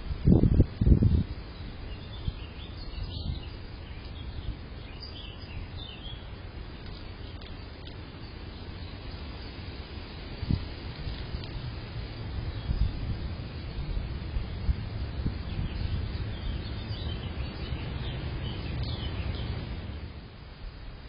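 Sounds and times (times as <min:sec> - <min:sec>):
wind noise on microphone: 0:00.0 - 0:21.0
faint bird chirps: 0:01.6 - 0:09.3.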